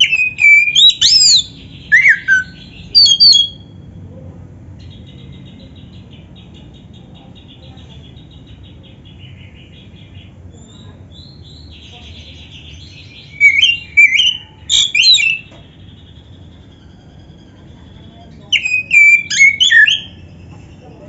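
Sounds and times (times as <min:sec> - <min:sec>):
bird chattering: 0:00.0 - 0:03.8, 0:04.8 - 0:21.0
bird whistled phrases: 0:00.0 - 0:03.8, 0:10.6 - 0:20.5.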